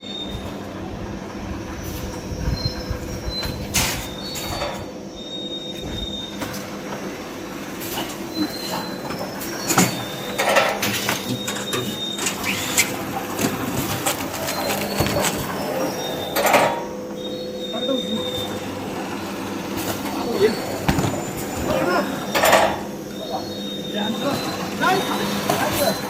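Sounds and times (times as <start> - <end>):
machine squeals: 0.0 - 26.0
paper tube machine humming: 0.0 - 26.0.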